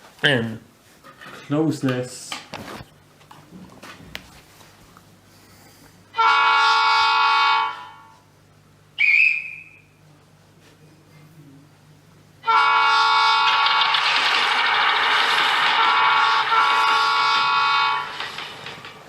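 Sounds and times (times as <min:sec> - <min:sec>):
train horn through phone speaker: 0:06.1 - 0:08.2, 0:12.4 - 0:14.0, 0:15.6 - 0:18.2.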